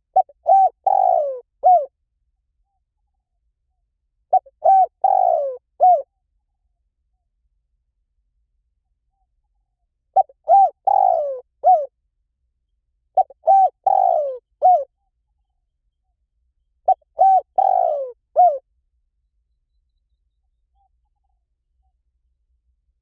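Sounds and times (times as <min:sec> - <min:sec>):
dove cooing: 0:00.0 - 0:01.9, 0:04.3 - 0:06.1, 0:10.2 - 0:11.9, 0:13.2 - 0:14.9, 0:16.9 - 0:18.6.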